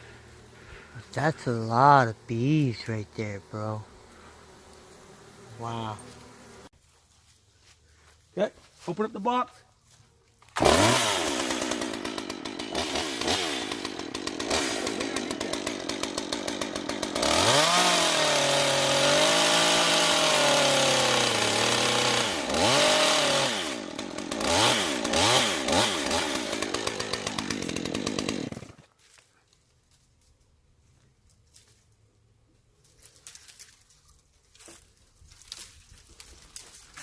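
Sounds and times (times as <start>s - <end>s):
chainsaw revving: 10.5s - 28.9s.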